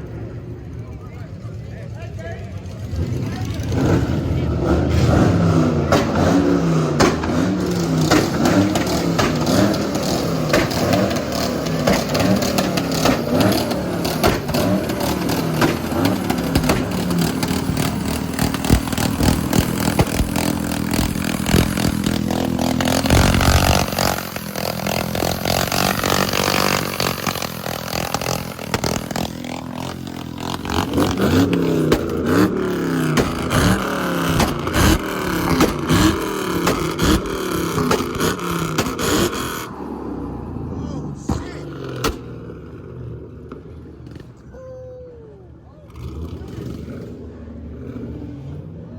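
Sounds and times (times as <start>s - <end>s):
car engine revving: 0.0s - 44.5s, 45.9s - 48.9s
sharp crackling: 7.1s - 39.7s.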